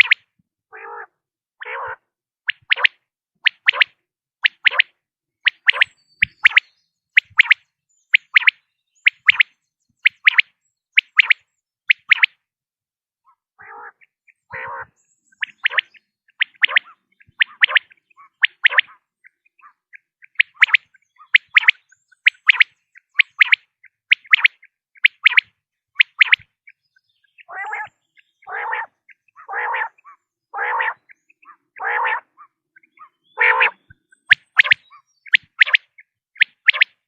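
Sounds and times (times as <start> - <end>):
quail calling: 0.0 - 4.9, 13.3 - 37.0.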